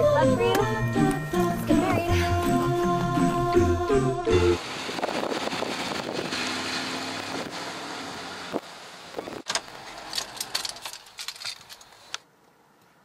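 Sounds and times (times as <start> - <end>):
car engine pulling away: 4.4 - 10.8.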